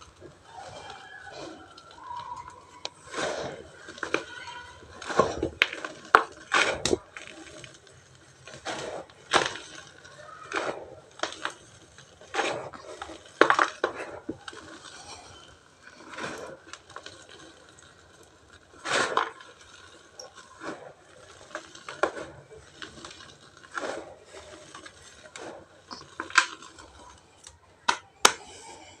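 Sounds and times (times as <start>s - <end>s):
cement chunks crunching: 0.0s - 29.0s.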